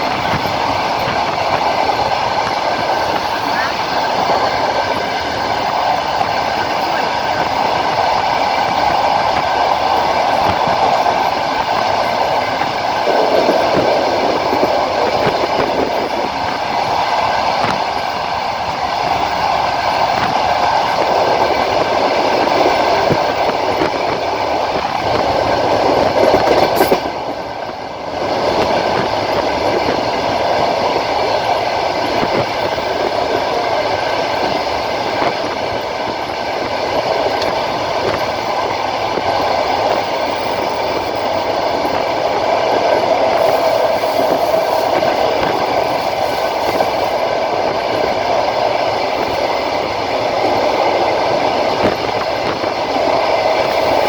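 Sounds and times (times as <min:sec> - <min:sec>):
train rumbling on rails: 0:00.0 - 0:54.0
wheels clicking over rail joints: 0:00.0 - 0:54.0.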